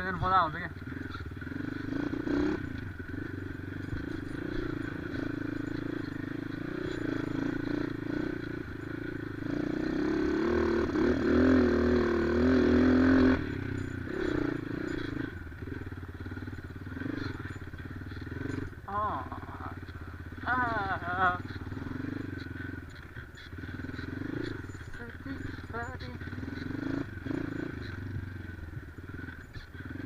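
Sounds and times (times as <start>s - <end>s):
motorcycle engine under load: 0.0s - 30.0s.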